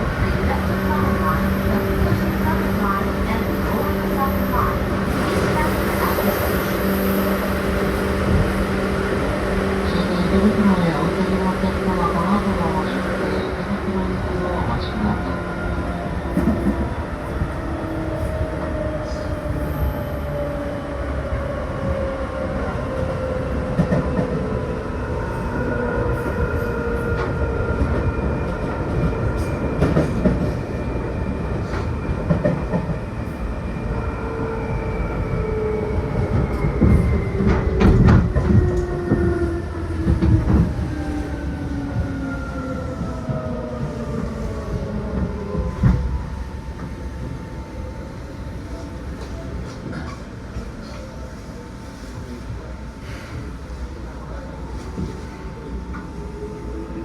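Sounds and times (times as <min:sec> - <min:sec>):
train car hum and rumble: 0:00.0 - 0:57.0.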